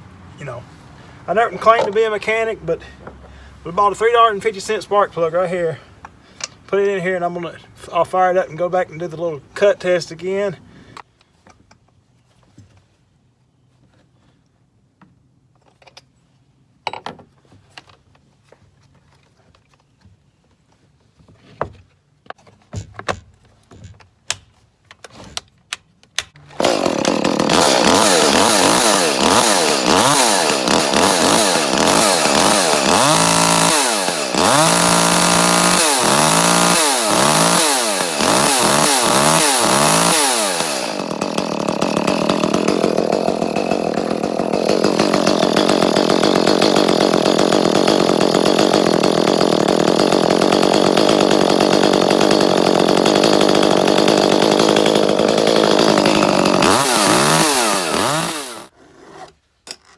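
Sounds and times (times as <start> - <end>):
chainsaw engine revving: 26.5 - 58.7.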